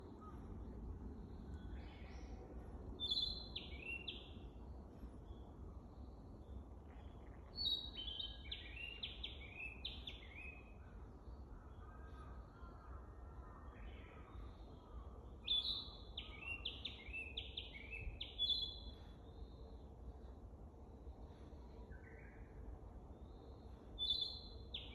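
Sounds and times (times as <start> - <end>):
steady low rumble: 0.0 - 3.0
bird whistled song: 3.0 - 4.4, 15.5 - 19.1, 24.0 - 24.9.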